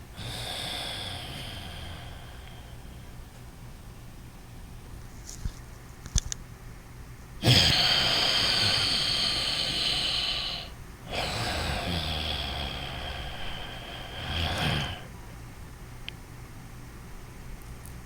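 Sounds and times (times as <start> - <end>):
person breathing through nose: 0.1 - 3.2, 7.4 - 15.1.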